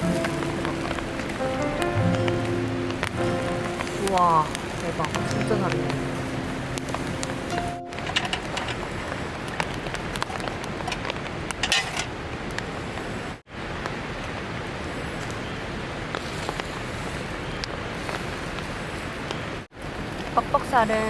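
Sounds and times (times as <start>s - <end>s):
raindrops ticking: 0.0s - 12.6s
steady rain hiss: 0.0s - 21.0s.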